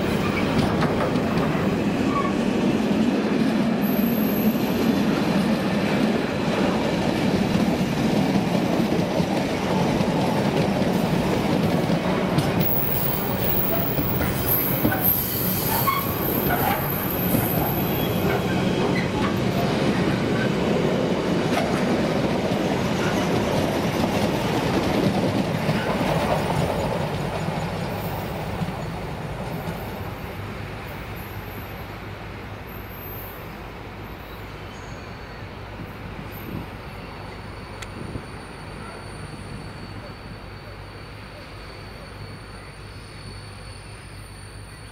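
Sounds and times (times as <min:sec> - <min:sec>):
freight train rolling on rails: 0:00.0 - 0:44.9
high-pitched wheel squeal: 0:13.0 - 0:19.4.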